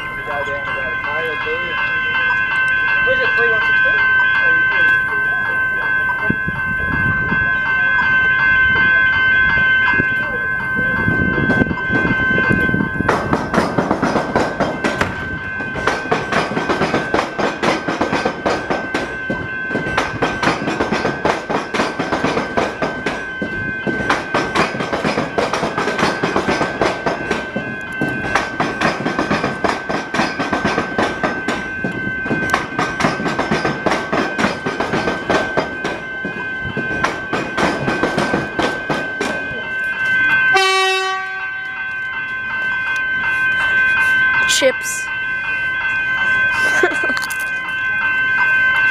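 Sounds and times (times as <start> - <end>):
steady high tone: 0.0 - 48.9
train wheels clattering over crossing: 11.0 - 41.7.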